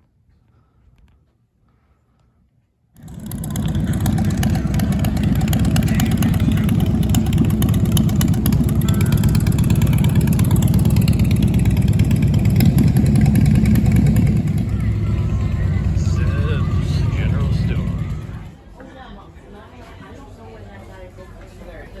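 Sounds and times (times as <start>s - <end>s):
vehicle engine and road rumble: 3.0s - 18.7s.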